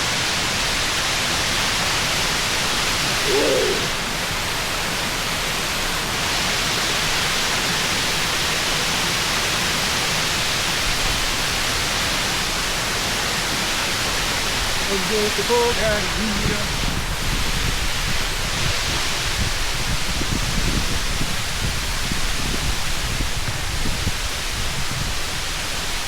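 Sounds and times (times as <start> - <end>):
waterfall rushing: 0.1 - 19.9
short call: 3.1 - 4.0.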